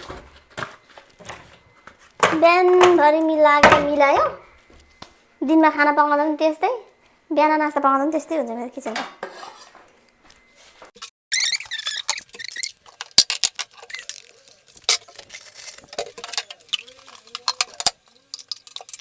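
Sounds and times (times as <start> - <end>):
utensils and dishes clinking: 0.0 - 4.5, 8.9 - 10.0, 11.0 - 19.0
high wavering squeaks: 11.3 - 12.8.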